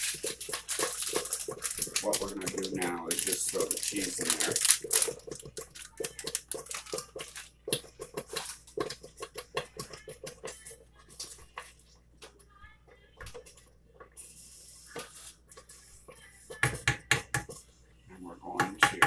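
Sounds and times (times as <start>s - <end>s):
shredded cheese tapping and rustling: 0.0s - 11.6s.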